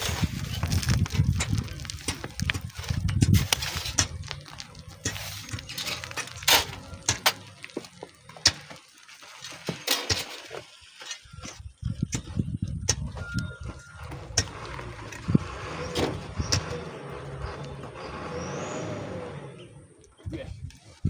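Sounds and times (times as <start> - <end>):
low gusty rumbling: 0.0 - 7.7, 11.3 - 20.8
stones and tools knocking: 0.0 - 15.4.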